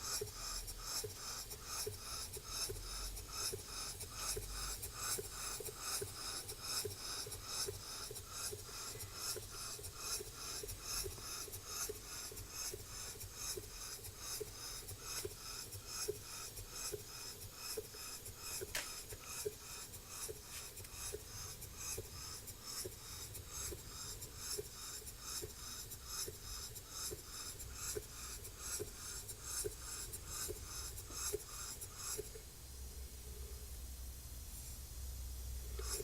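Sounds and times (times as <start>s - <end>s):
model steam engine chuffing: 0.0s - 32.4s, 35.8s - 36.0s.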